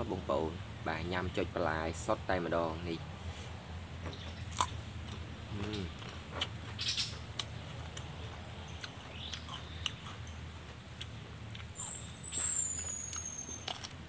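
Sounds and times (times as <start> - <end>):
person chewing crunchy food: 4.4 - 14.0.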